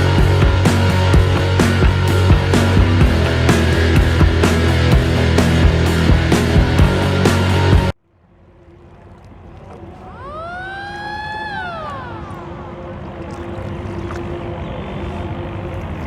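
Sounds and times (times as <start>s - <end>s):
background music: 0.0s - 8.0s
boat engine humming: 0.0s - 16.0s
water noise: 0.0s - 16.0s
siren wail: 10.0s - 15.2s.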